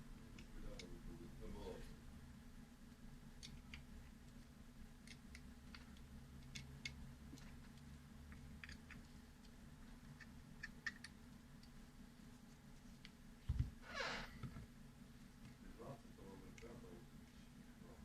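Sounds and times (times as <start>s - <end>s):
steady low hum: 0.0s - 18.0s
small parts clicking: 3.4s - 11.8s.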